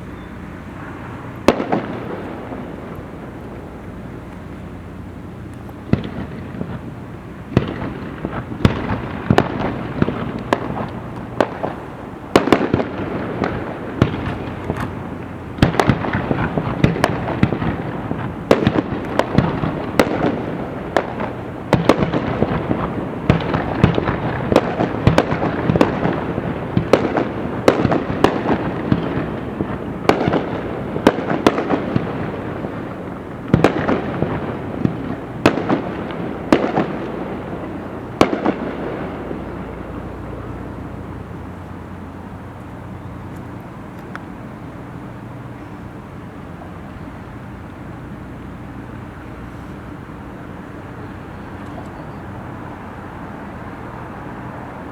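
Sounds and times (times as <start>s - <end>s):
fireworks bangs: 0.0s - 54.9s
fireworks crackle: 0.0s - 54.9s.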